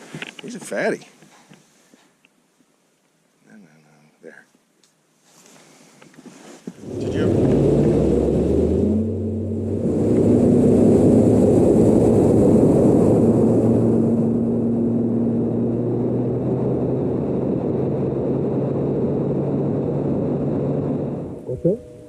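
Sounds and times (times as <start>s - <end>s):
outboard motor running: 6.8s - 12.5s.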